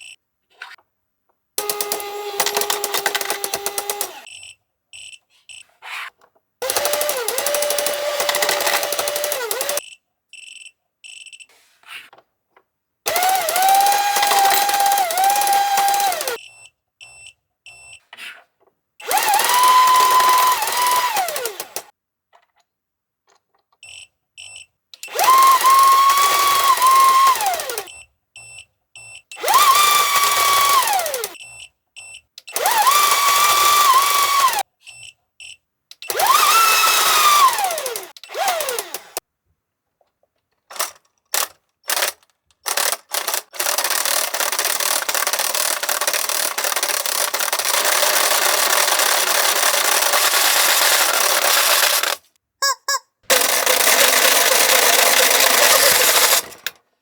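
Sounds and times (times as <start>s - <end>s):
toy motor whining: 1.6s - 4.4s, 6.6s - 9.8s, 13.1s - 16.4s, 19.0s - 21.9s, 25.1s - 28.0s, 29.4s - 31.4s, 32.5s - 34.6s, 36.1s - 39.2s, 40.8s - 56.8s
buzzing rattle: 53.3s - 56.8s.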